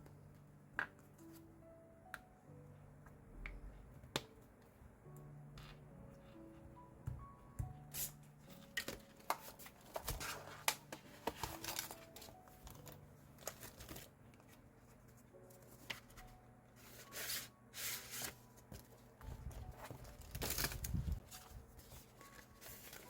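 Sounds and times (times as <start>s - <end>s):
paper rustling on a desk: 8.6s - 23.0s.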